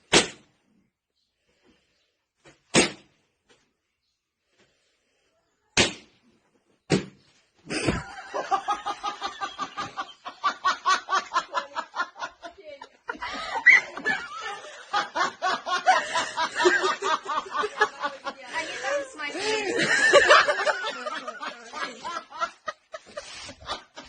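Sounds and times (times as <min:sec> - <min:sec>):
sharp slaps: 0:00.1 - 0:00.5, 0:02.5 - 0:03.2, 0:05.8 - 0:06.2, 0:06.9 - 0:07.2.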